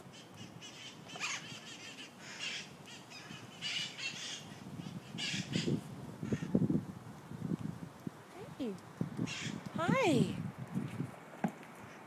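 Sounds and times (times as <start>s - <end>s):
parakeets screeching squawks: 0.4s - 6.4s, 9.3s - 9.6s.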